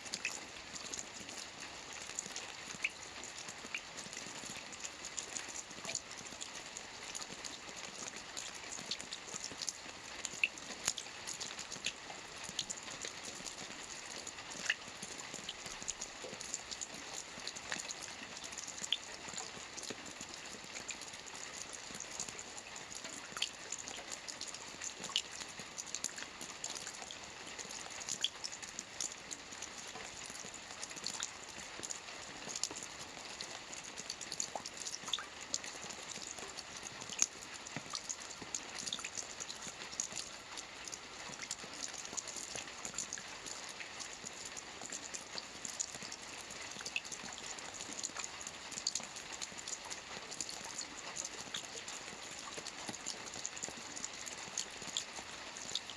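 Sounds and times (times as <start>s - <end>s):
rain falling on a lake: 0.0s - 55.9s.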